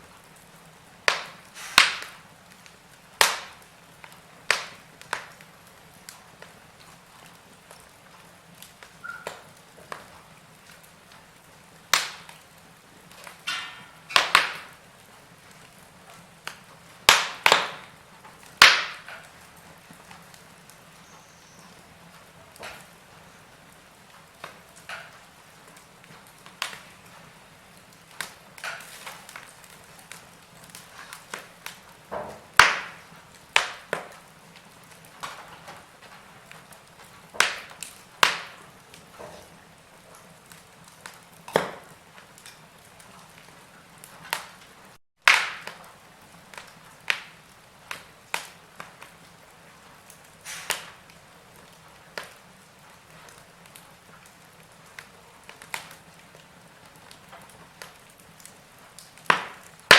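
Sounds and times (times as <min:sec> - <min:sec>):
faint steady hiss: 0:00.0 - 0:45.0
wood fire crackling: 0:00.0 - 0:59.9.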